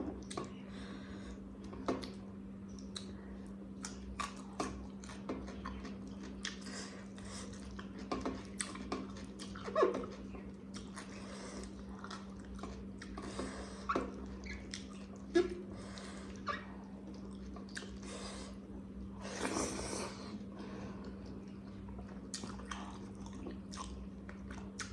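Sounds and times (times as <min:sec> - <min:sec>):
steady low hum: 0:00.0 - 0:24.9
person chewing food: 0:01.6 - 0:24.9.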